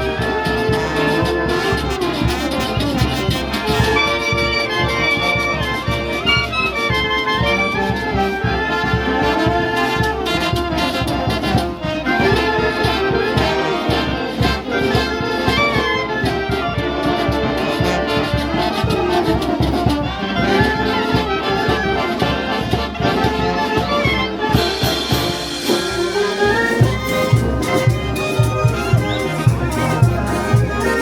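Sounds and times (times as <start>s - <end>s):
brass band playing: 0.0s - 31.0s.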